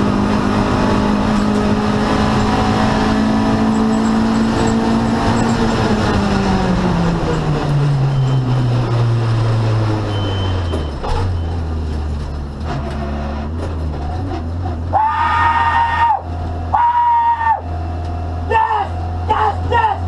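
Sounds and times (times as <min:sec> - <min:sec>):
car engine from inside cabin: 0:00.0 - 0:14.9.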